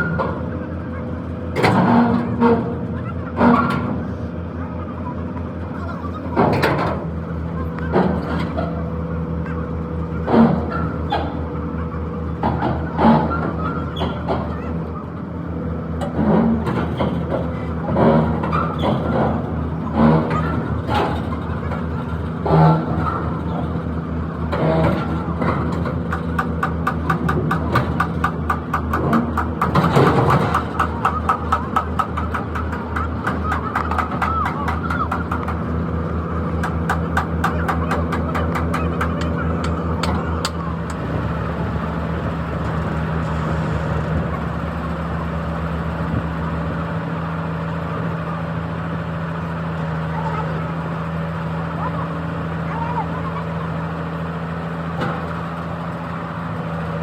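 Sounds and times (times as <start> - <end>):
engine idling: 0.0 - 57.0
sharp knocks: 24.6 - 41.0.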